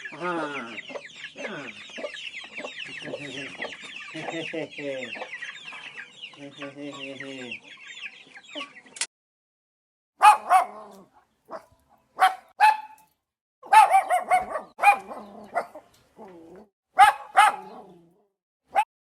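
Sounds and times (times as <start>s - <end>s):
dog barking: 10.2s - 15.9s, 17.0s - 18.1s.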